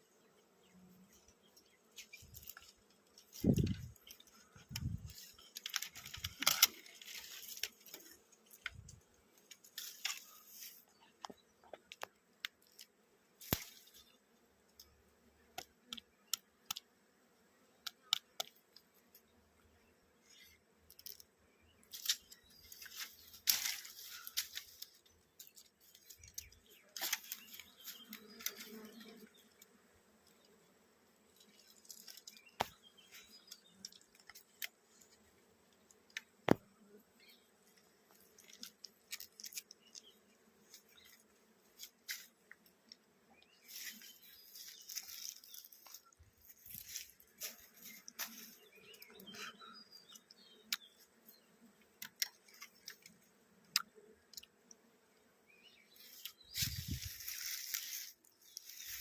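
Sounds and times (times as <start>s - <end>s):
scraping and rustling from handling: 2.0s - 11.0s, 21.9s - 29.3s, 56.0s - 59.0s.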